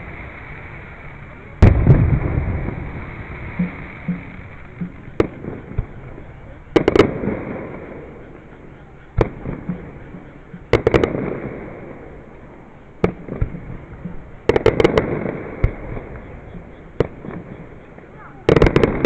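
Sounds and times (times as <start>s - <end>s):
rumbling echo: 0.0s - 8.5s
fireworks bursting: 0.0s - 19.0s
fireworks crackling: 0.0s - 19.0s.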